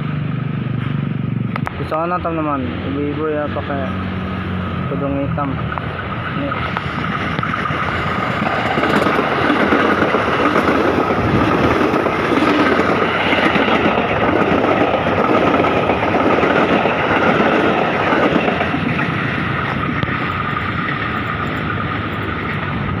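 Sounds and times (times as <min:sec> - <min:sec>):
electric train rumbling past: 0:00.0 - 0:23.0.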